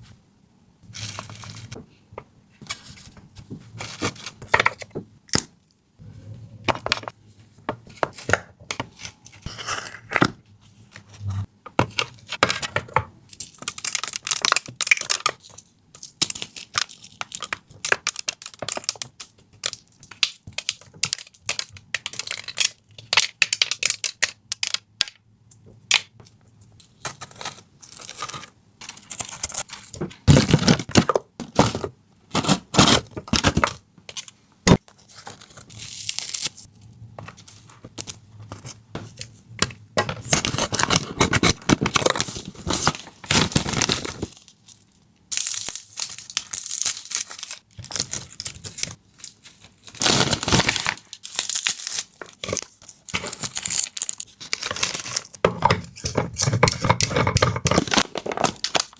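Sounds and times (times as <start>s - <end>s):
tearing and crinkling: 32.3s - 36.7s, 40.2s - 55.4s.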